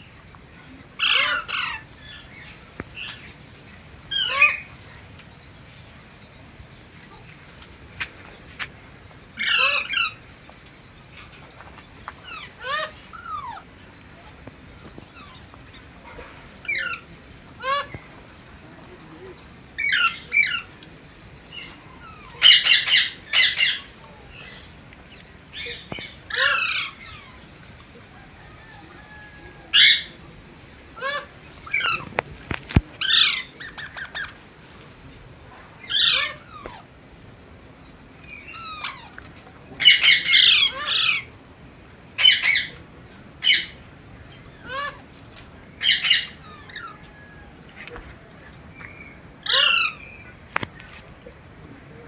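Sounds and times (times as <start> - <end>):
steady high-pitched hiss: 0.0 - 52.0
parrot squawking and chirping: 1.0 - 3.3, 4.1 - 5.0, 9.4 - 10.2, 12.2 - 13.7, 16.6 - 18.0, 19.8 - 20.7, 26.3 - 27.3, 30.9 - 32.1, 33.0 - 34.9, 35.8 - 36.9, 39.8 - 41.3, 44.6 - 45.0, 45.8 - 47.0, 49.4 - 50.1.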